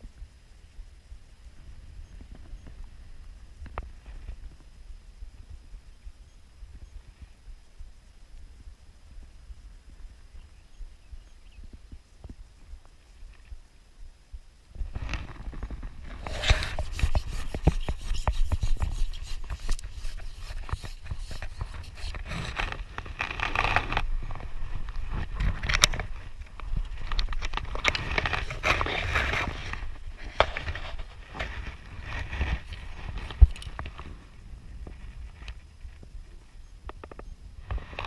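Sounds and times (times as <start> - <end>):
handling noise rubbing and scraping: 14.9 - 34.2
small irregular clicks and knocks: 32.7 - 34.1.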